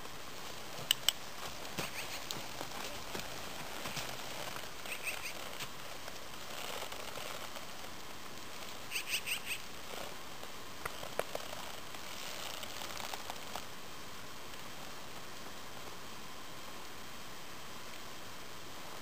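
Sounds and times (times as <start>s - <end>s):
steady outdoor hiss: 0.0s - 19.0s
bird chirping: 4.8s - 5.4s, 8.9s - 9.6s.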